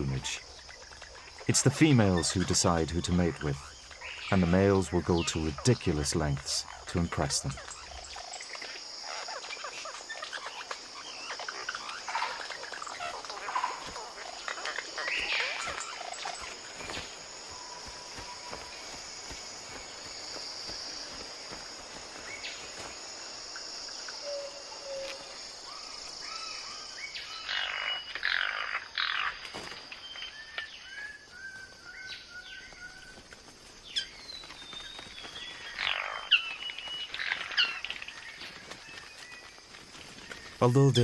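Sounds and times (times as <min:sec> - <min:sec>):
harsh bird calls: 0:00.0 - 0:33.2, 0:33.8 - 0:41.0
forest birds calling: 0:00.0 - 0:41.0
high insect drone: 0:00.0 - 0:41.0.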